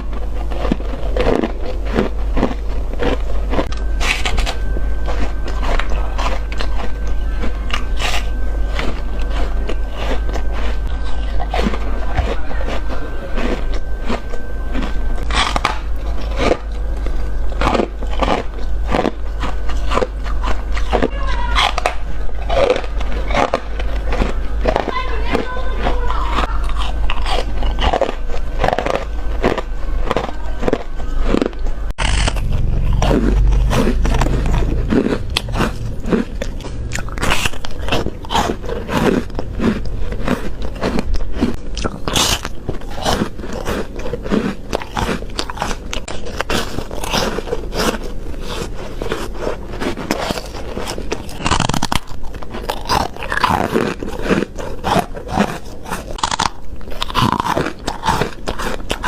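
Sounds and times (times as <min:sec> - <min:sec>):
ice crunching between teeth: 0:00.0 - 0:59.0
low rumble: 0:31.5 - 0:51.4.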